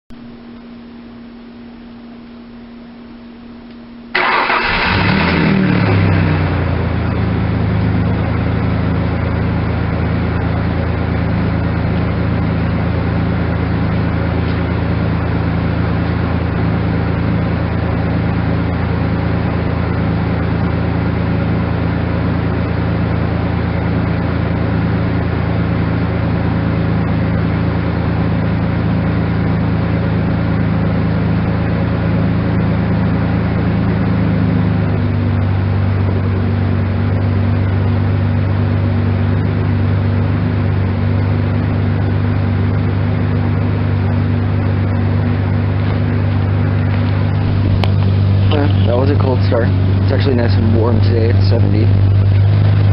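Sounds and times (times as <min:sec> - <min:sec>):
truck engine starting and idling: 0:04.1 - 0:52.9.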